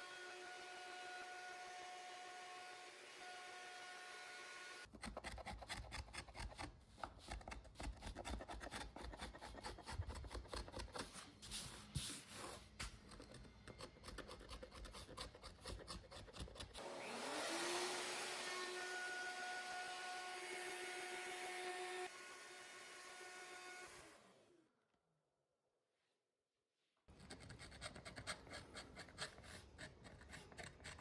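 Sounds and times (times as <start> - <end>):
hand tool scraping wood: 4.9 - 16.8, 27.1 - 31.0.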